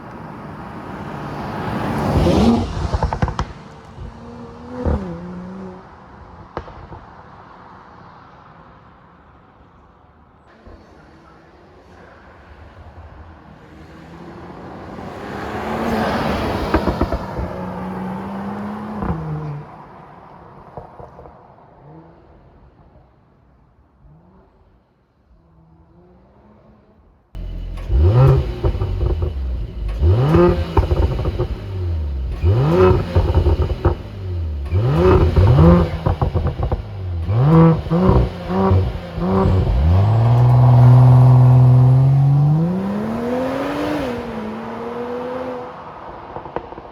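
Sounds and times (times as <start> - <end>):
car passing with exhaust crackles: 0.0 - 22.6, 27.4 - 46.9
car engine revving on launch: 1.4 - 5.9, 27.4 - 45.8
engine rev blips: 27.4 - 45.4.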